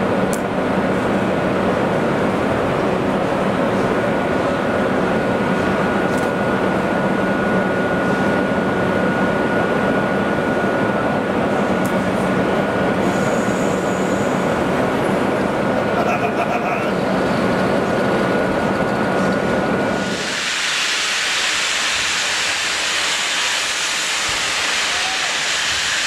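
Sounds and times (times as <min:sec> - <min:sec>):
train rumbling on rails: 0:00.0 - 0:26.0
thin high whine: 0:19.8 - 0:26.0.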